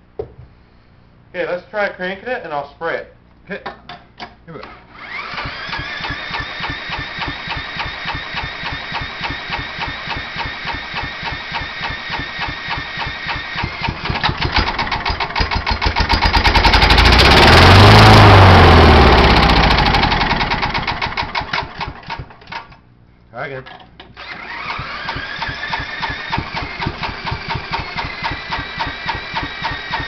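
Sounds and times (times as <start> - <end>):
electric drill motor whining: 4.9 - 14.6, 24.2 - 30.0
mower engine running: 5.0 - 22.5, 24.2 - 30.0
engine cranking beat: 5.1 - 22.4, 24.2 - 30.0.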